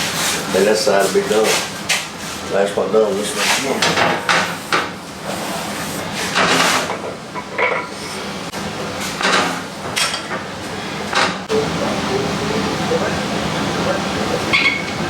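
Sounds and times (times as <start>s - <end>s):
low machine hum: 5.0s - 15.0s.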